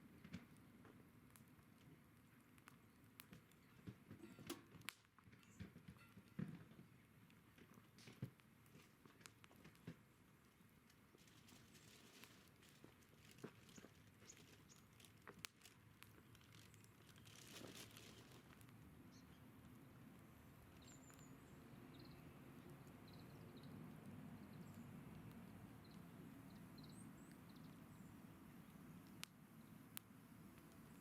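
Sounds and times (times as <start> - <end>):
small clicks and crackles: 0.0 - 31.0
soft background noise: 0.0 - 31.0
faint bird chirps: 20.7 - 29.8.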